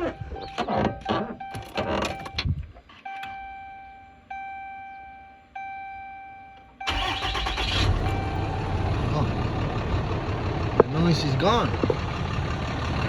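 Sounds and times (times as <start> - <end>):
dashboard warning chime: 0.0 - 8.8
truck engine starting and running: 0.0 - 13.0.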